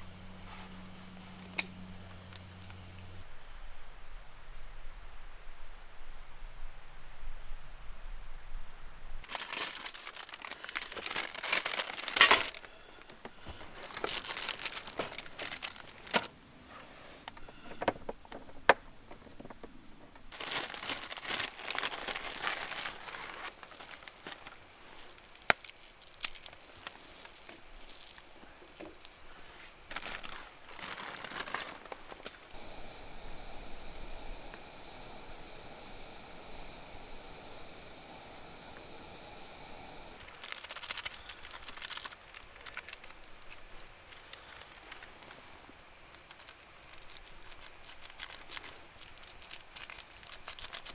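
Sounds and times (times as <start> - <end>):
insects chirring: 0.0 - 3.2, 9.2 - 16.6, 17.2 - 50.9
sharp clicks: 1.4 - 3.0
rustling and crinkling: 9.2 - 32.6, 40.2 - 50.9.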